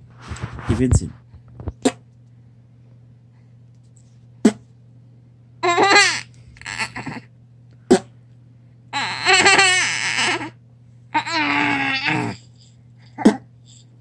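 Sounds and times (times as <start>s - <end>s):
baby laughing: 5.6s - 7.3s, 9.0s - 13.8s.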